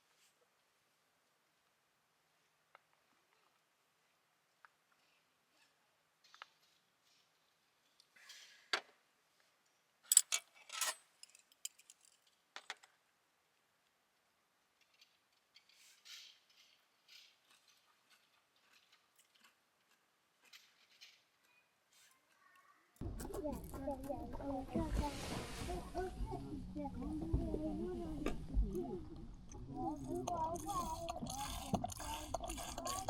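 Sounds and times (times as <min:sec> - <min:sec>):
objects being handled: 0:14.8 - 0:26.4.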